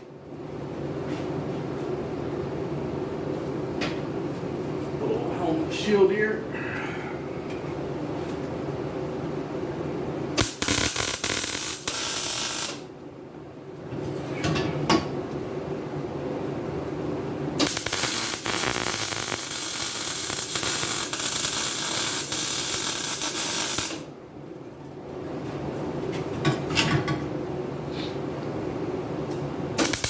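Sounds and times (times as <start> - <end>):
welding arc crackling: 10.4 - 12.9, 17.6 - 24.1, 29.8 - 30.0.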